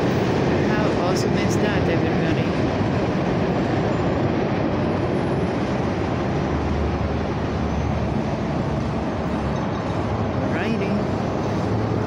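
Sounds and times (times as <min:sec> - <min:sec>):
steel wheels rolling on rails: 0:00.0 - 0:12.0.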